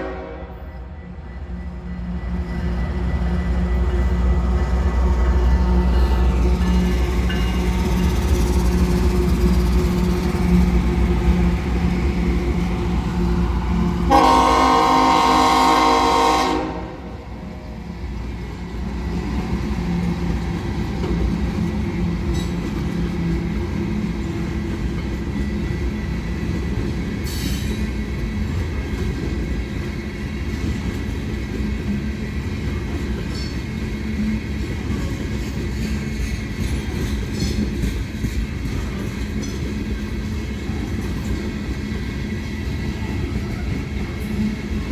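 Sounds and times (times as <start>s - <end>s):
train horn blast: 0.0s - 0.8s, 14.0s - 17.4s
locomotive engine hum: 0.0s - 44.9s
train wheels rumbling on rails: 0.0s - 44.9s.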